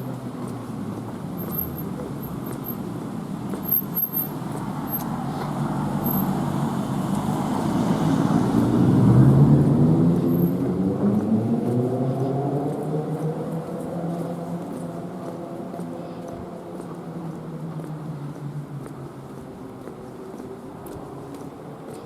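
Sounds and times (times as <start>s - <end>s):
rumble of passing cars: 0.0s - 22.0s
vehicle engine passing close: 3.8s - 15.7s.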